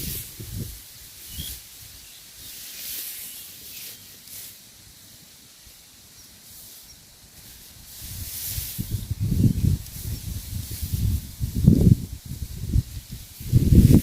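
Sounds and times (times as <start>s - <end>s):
rustling through grass: 0.0s - 14.0s.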